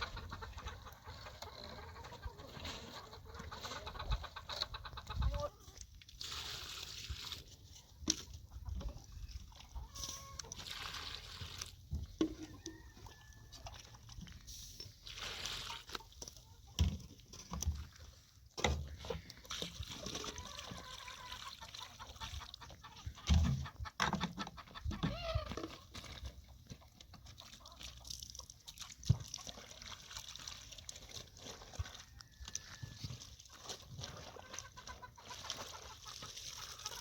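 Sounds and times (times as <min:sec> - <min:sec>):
chickens clucking: 0:00.0 - 0:06.0, 0:07.6 - 0:10.6, 0:14.8 - 0:17.6, 0:18.7 - 0:28.7, 0:31.9 - 0:37.0.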